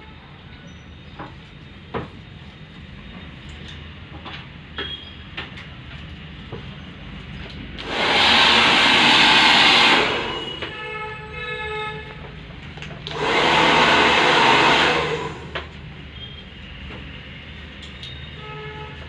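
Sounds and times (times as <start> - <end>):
hair dryer blowing: 7.8 - 10.8, 13.0 - 15.8.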